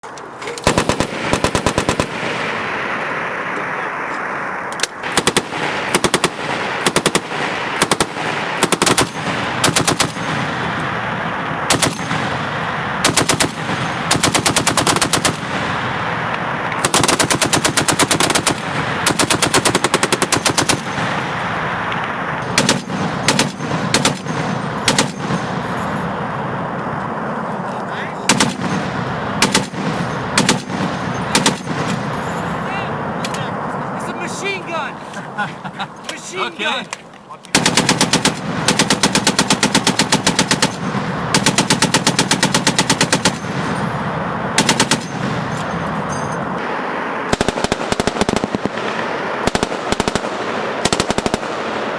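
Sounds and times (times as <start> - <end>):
steady rushing noise: 0.0 - 51.9
machine guns firing bursts: 0.6 - 2.6, 5.0 - 11.0, 11.6 - 15.9, 16.8 - 21.5, 22.4 - 25.9, 28.3 - 32.2, 37.5 - 44.0, 44.6 - 45.9, 47.3 - 51.9.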